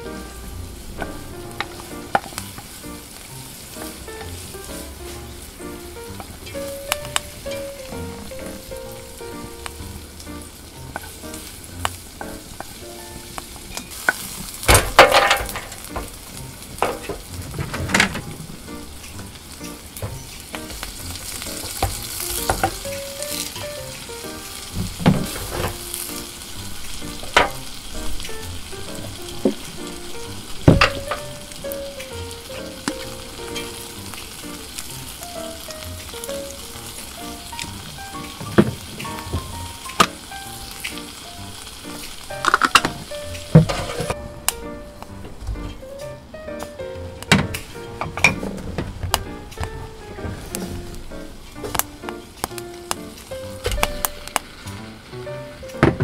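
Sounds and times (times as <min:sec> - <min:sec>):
vegetables sizzling in a frying pan: 0:00.0 - 0:17.4, 0:18.2 - 0:45.2, 0:49.2 - 0:56.0
knocks and clatters against pan: 0:14.7 - 0:16.2.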